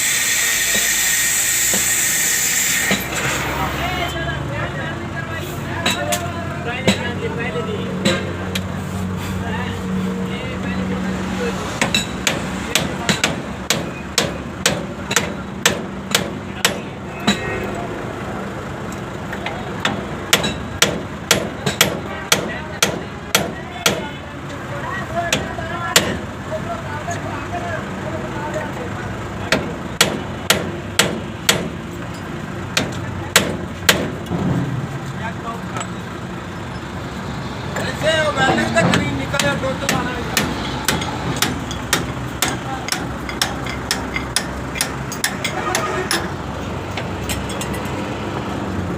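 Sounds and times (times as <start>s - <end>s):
hammer blows: 0.0s - 3.7s
hammer striking metal: 0.6s - 3.4s, 8.0s - 8.4s, 11.8s - 17.6s, 19.8s - 24.0s, 29.5s - 31.8s, 38.5s - 46.4s.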